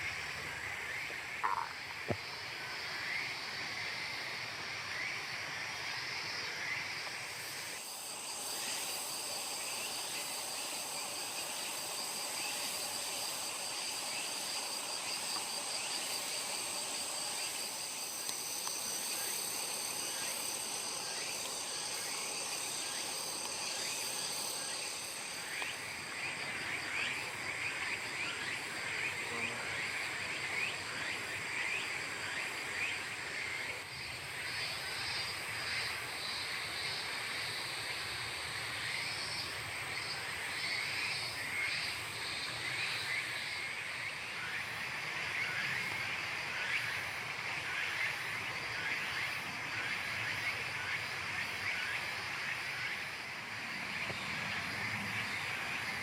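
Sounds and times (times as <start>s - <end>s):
frogs croaking: 0.0s - 56.0s
insects trilling: 0.0s - 56.0s.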